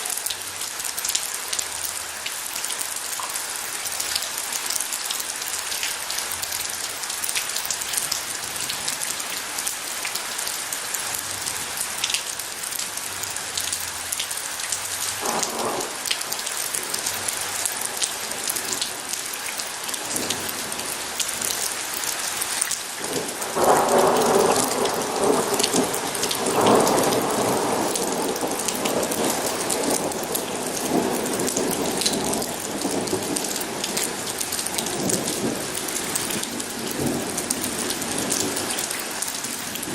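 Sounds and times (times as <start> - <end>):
steady rain falling: 0.0 - 39.9
thunder rumbling: 23.0 - 39.0.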